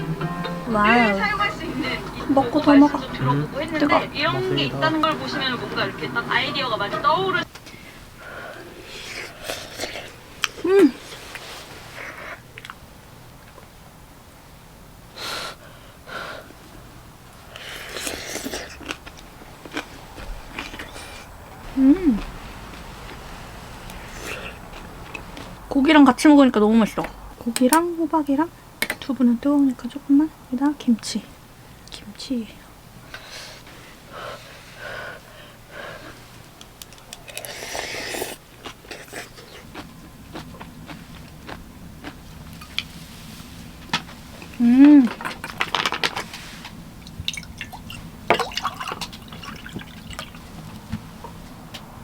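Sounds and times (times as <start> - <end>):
crackly noise: 0.0 - 52.0
puffs of breath: 7.6 - 10.2, 15.1 - 16.6, 33.0 - 36.5
breathy hiss of air: 7.6 - 12.5, 15.1 - 18.8, 20.8 - 25.6, 33.0 - 36.6
breathy mouth sounds: 7.6 - 12.8, 17.5 - 25.6.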